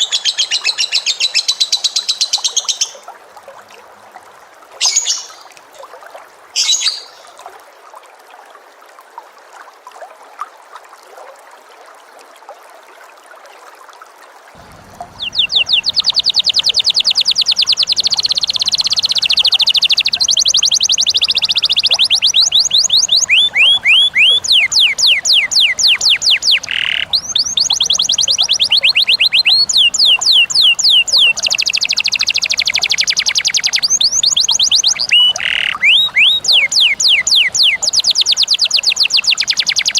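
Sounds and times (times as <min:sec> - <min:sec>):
bird singing rapid trill: 0:00.0 - 0:03.0, 0:14.6 - 0:39.9
short bird calls: 0:14.6 - 0:39.9.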